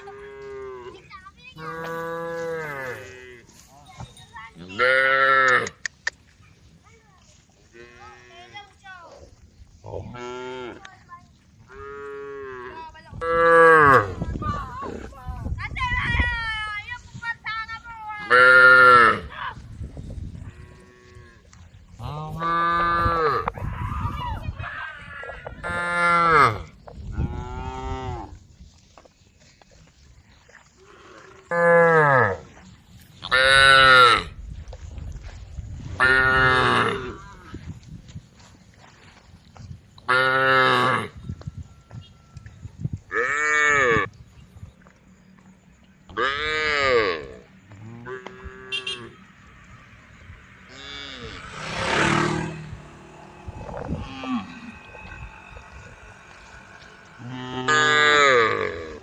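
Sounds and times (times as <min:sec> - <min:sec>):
cows mooing: 0:00.0 - 0:03.7, 0:04.6 - 0:05.8, 0:22.0 - 0:23.6, 0:25.2 - 0:28.3, 0:40.1 - 0:41.2, 0:43.1 - 0:44.1, 0:46.1 - 0:49.6, 0:50.5 - 0:59.0.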